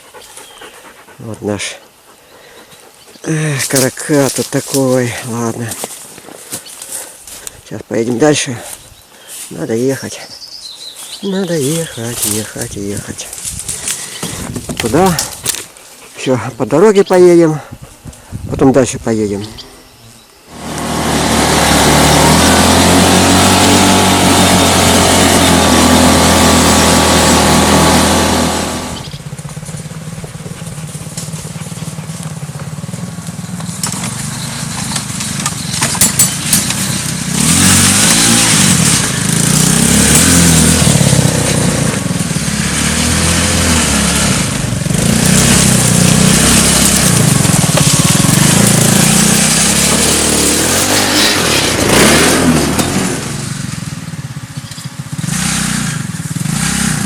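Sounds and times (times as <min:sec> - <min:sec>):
quad bike engine running: 0:11.4 - 0:15.7, 0:20.5 - 0:57.0.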